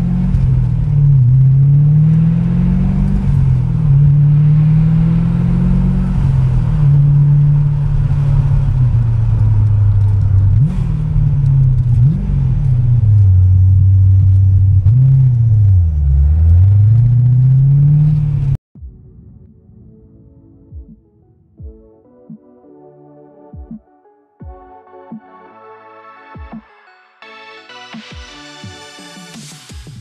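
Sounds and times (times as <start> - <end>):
car engine revving from inside: 0.0 - 18.6.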